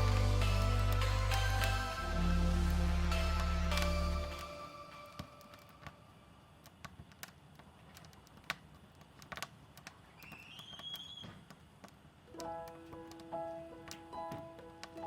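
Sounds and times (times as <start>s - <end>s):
thin rising tone: 0.0s - 6.3s.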